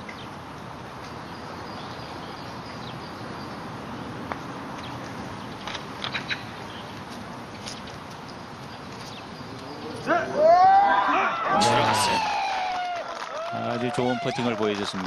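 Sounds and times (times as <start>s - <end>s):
small birds chirping: 0.0s - 10.3s
outdoor background hiss: 0.0s - 15.0s.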